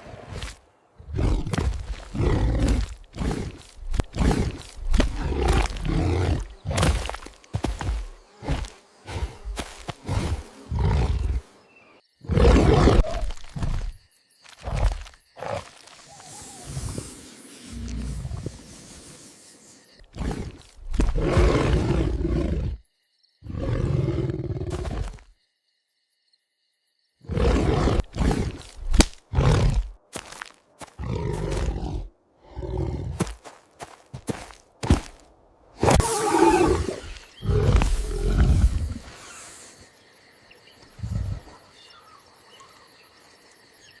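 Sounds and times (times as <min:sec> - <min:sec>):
big cat roaring: 0:01.0 - 0:06.9, 0:10.0 - 0:11.4, 0:12.2 - 0:13.3, 0:20.1 - 0:22.8, 0:23.4 - 0:25.2, 0:27.3 - 0:28.6, 0:31.0 - 0:33.2, 0:35.9 - 0:39.2.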